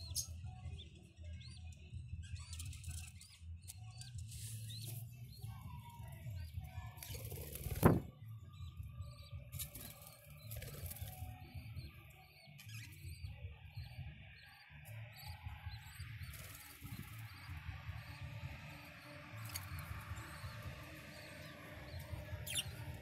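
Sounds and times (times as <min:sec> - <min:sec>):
budgerigars chirping: 0:15.2 - 0:23.0.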